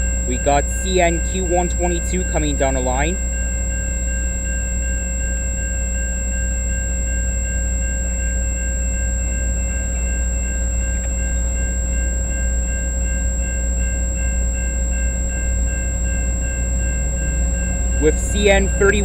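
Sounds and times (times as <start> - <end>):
steady tones: 0.0 - 5.2, 9.0 - 19.0
diesel train rumble: 0.0 - 19.0.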